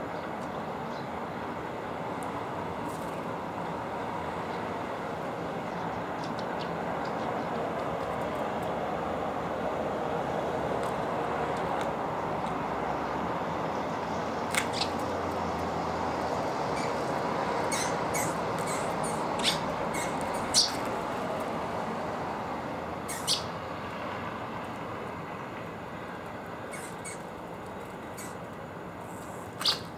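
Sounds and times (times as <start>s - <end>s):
songbirds chirping: 0.0s - 1.6s, 3.6s - 8.8s, 11.5s - 22.1s, 23.0s - 23.6s, 26.6s - 28.5s
outdoor street noise: 0.0s - 29.9s.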